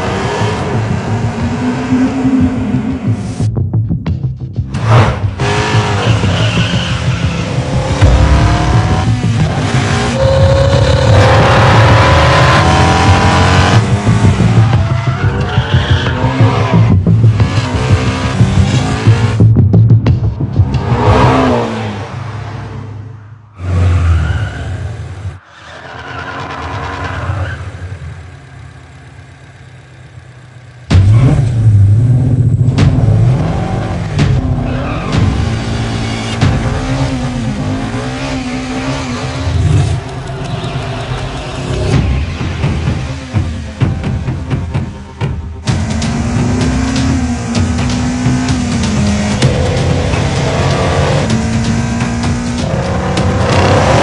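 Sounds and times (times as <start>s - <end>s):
race car engine revving: 4.7s - 19.4s, 26.1s - 54.0s
tyres skidding: 4.7s - 19.4s, 20.4s - 54.0s.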